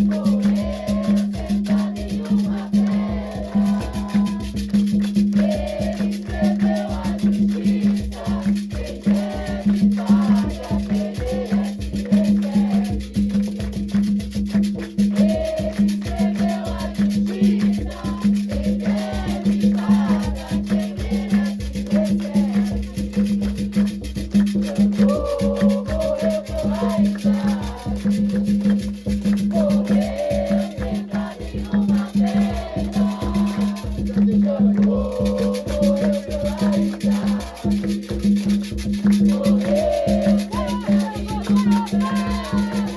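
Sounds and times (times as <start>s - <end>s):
drums and shakers playing: 0.0s - 42.9s
person singing: 39.3s - 42.9s.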